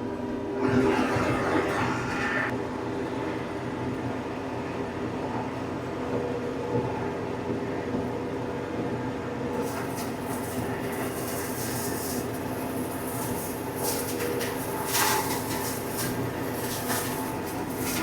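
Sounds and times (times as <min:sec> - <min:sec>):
flail mower spinning: 0:09.6 - 0:18.0.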